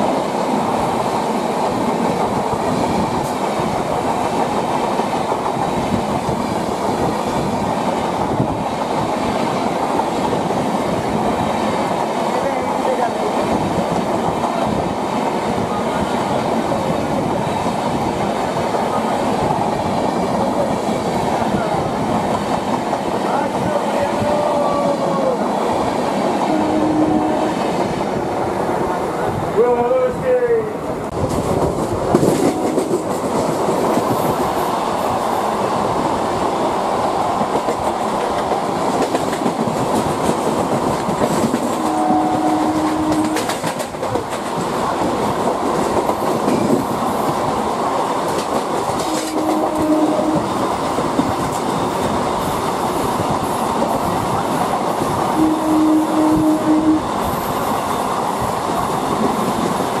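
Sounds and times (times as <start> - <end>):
train wheels rumbling on rails: 0.0 - 60.0
short horn-like tone: 26.5 - 27.6, 41.8 - 43.5, 49.0 - 50.5, 55.4 - 57.1.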